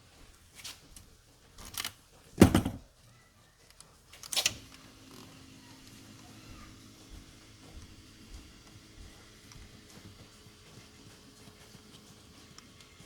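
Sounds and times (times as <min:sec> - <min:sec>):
heavy thud: 0:02.4 - 0:02.8
knocks and clunks: 0:02.4 - 0:02.8.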